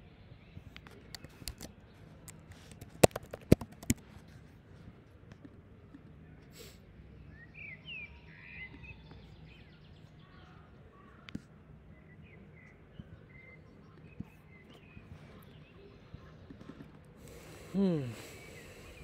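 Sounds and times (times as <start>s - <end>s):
sharp clicks: 0.7s - 4.0s
faint bird chirps: 5.9s - 19.0s.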